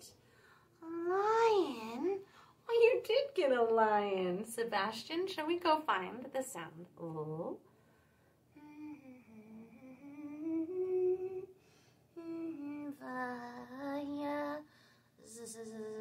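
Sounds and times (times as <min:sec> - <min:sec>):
woman humming a tune: 0:08.6 - 0:11.6, 0:12.2 - 0:13.0.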